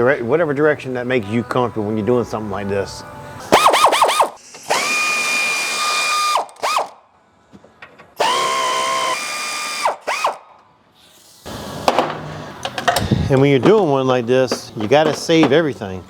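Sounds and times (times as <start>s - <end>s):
power wrench whining: 3.5s - 7.0s, 8.2s - 10.4s.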